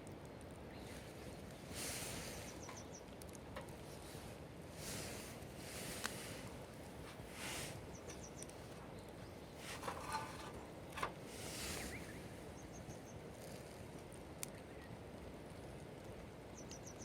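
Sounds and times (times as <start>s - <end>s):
steady low hiss: 0.0s - 17.0s
brief rustles and clicks: 9.6s - 12.0s.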